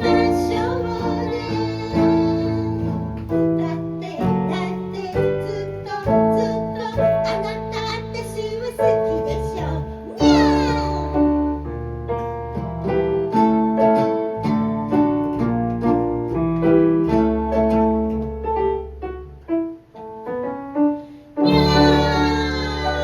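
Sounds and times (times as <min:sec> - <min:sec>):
person singing: 0:00.0 - 0:11.3, 0:21.4 - 0:23.0
piano ballad: 0:00.0 - 0:23.0.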